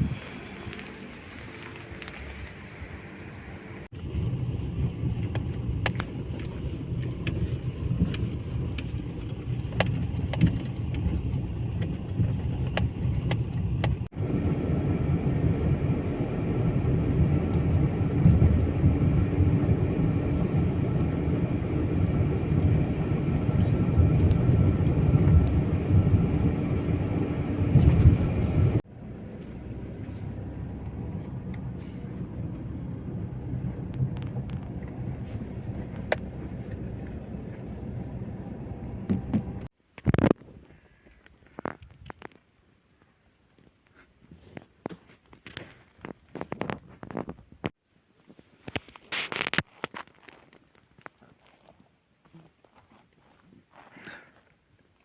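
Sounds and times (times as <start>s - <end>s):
vehicle rumble: 0.0s - 39.7s.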